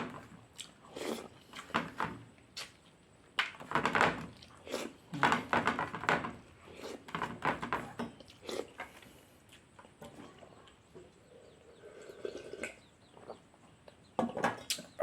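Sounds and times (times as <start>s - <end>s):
person chewing and smacking: 0.1s - 1.7s, 4.3s - 5.5s, 8.1s - 10.8s.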